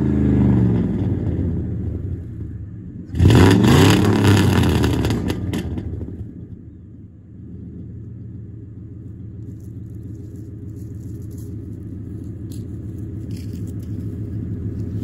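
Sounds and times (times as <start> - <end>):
truck engine idling: 4.6 - 15.0.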